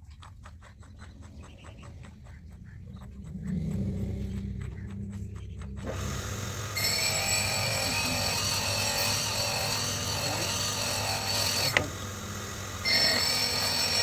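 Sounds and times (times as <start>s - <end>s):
metal lathe running with whine: 5.9s - 14.0s.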